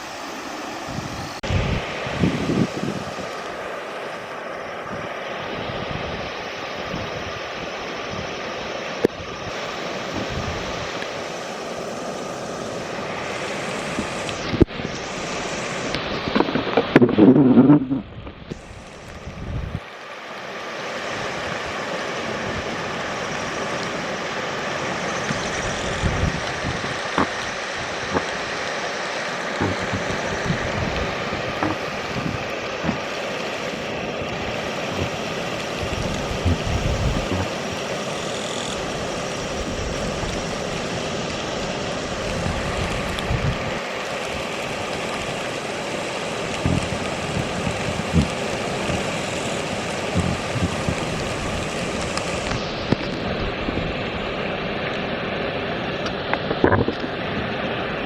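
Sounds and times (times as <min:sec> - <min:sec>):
river water rushing: 0:00.0 - 0:58.0
wind buffeting microphone: 0:00.8 - 0:03.3, 0:09.1 - 0:11.0, 0:13.8 - 0:19.8, 0:25.2 - 0:28.6, 0:29.6 - 0:33.1, 0:34.2 - 0:37.9, 0:38.8 - 0:43.8, 0:46.4 - 0:54.3.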